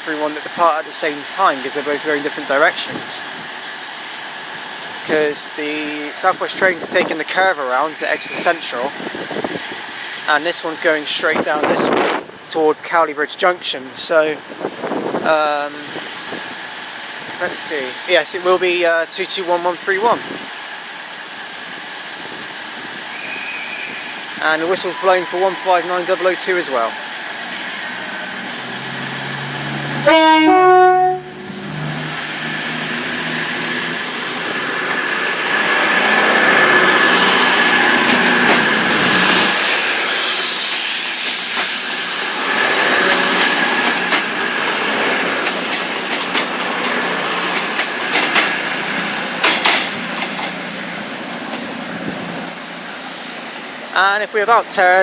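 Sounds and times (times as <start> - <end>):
train running noise: 0.0 - 55.0
train two-tone horn: 30.0 - 31.6.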